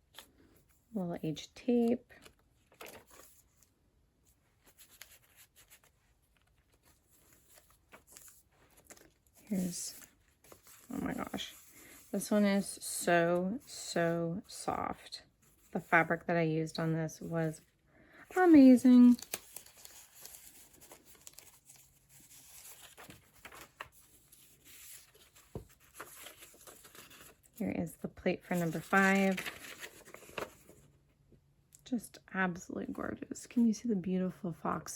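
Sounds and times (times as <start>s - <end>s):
paper pages rustling: 2.0s - 12.8s, 18.4s - 27.6s, 28.5s - 31.0s.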